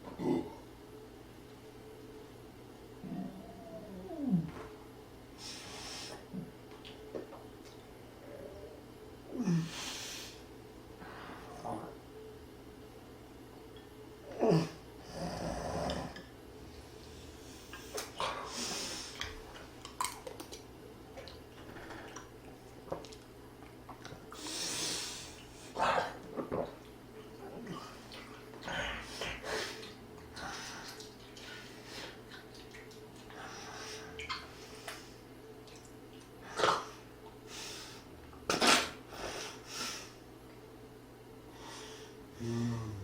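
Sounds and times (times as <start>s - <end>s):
breathy hiss: 5.4s - 6.3s, 9.4s - 11.6s, 17.0s - 19.2s, 24.3s - 25.8s
soft eating clicks: 19.2s - 24.3s, 32.2s - 33.4s, 35.6s - 36.4s.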